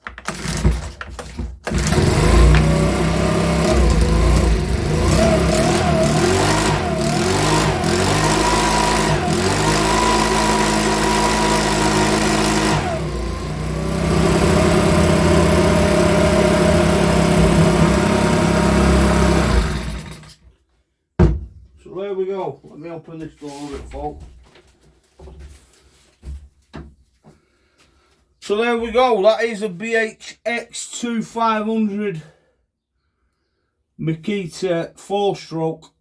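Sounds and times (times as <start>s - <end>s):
leaf blower engine running: 0.3s - 0.9s, 1.7s - 20.3s.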